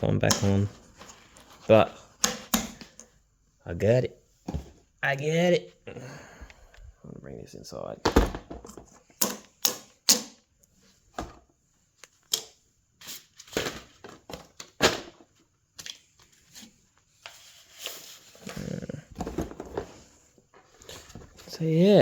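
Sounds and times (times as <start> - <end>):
objects being handled: 8.0 - 21.8.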